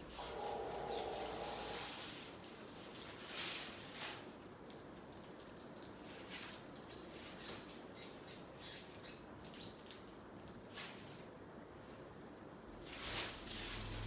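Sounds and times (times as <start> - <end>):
soft rustle: 0.1 - 7.6, 9.4 - 14.0.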